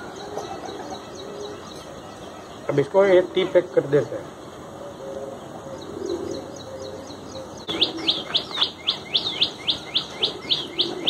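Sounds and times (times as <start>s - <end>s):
bird calling sharp rising notes: 4.3s - 11.0s.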